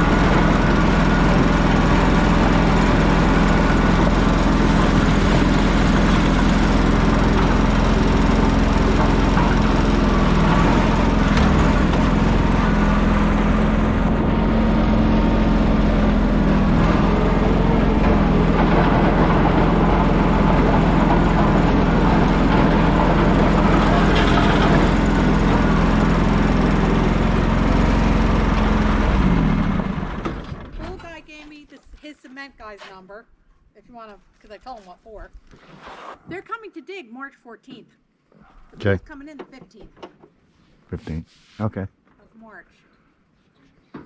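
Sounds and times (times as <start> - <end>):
engine running: 0.0 - 31.2.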